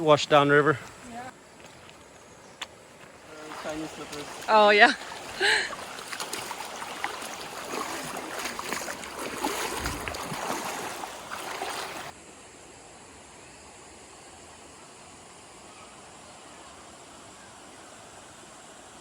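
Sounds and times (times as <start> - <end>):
river water splashing: 0.0 - 12.2
faint steady hiss: 0.0 - 19.0.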